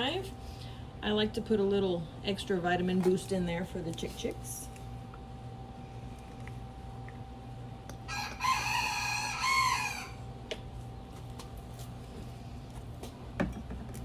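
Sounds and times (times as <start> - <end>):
rooster crowing: 8.0 - 10.3.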